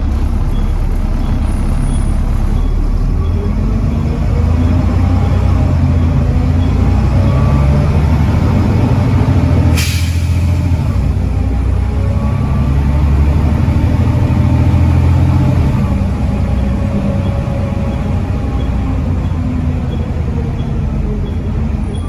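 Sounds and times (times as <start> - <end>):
bus diesel engine under load: 0.0 - 22.0
air brake hiss: 9.7 - 10.8.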